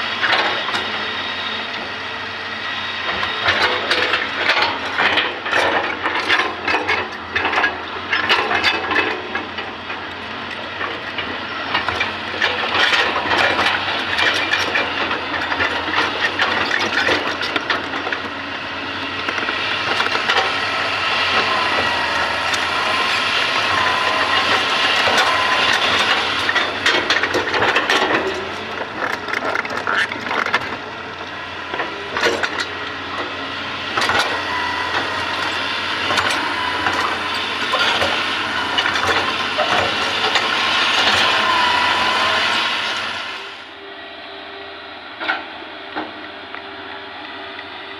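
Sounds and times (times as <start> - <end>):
excavator engine and hydraulics: 0.0 - 47.9
wavering whine: 12.4 - 47.9.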